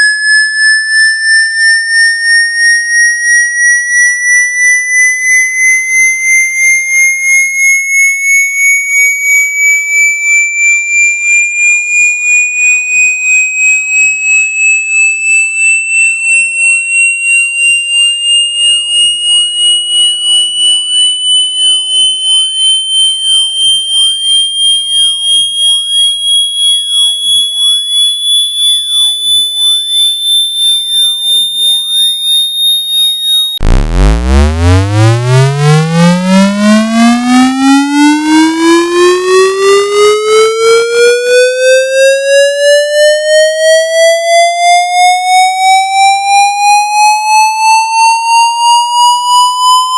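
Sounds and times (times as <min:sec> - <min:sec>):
high pulsing electronic tone: 0:19.2 - 0:30.0, 0:30.8 - 0:40.7.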